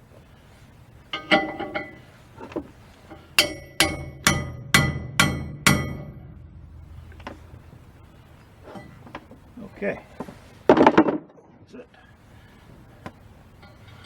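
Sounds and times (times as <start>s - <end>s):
hammer striking metal: 1.2s - 2.1s, 3.1s - 9.8s
light metal clinks: 1.2s - 2.2s.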